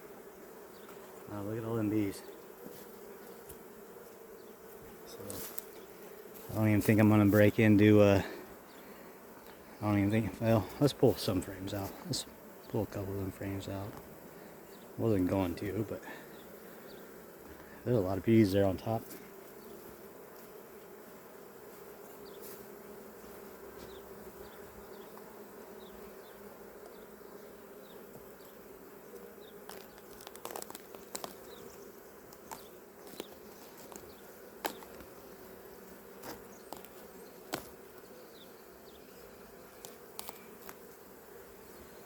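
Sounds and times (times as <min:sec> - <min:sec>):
honeybees buzzing: 0:00.0 - 0:42.0.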